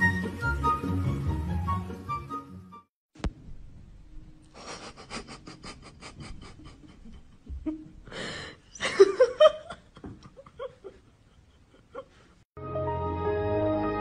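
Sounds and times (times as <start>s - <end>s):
person laughing: 4.5s - 12.3s.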